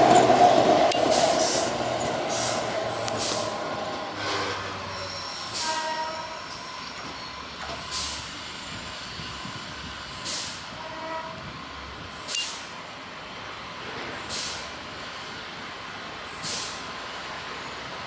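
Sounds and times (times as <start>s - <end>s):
electric train rumbling past: 0.0s - 18.0s
air brakes hissing: 1.0s - 10.8s, 12.1s - 12.8s, 14.1s - 14.8s, 16.3s - 17.0s
faint wheel squeal: 4.2s - 8.2s.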